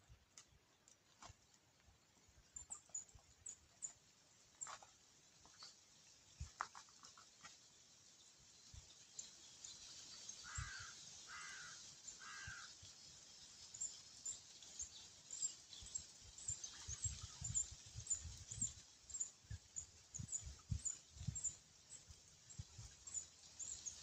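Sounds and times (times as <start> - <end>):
bird calling: 10.4 - 12.7.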